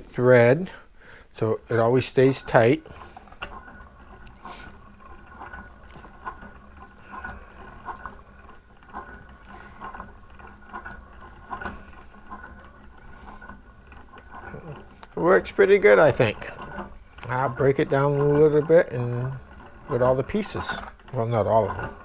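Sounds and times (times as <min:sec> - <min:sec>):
plastic gears clicking: 0:01.7 - 0:22.0.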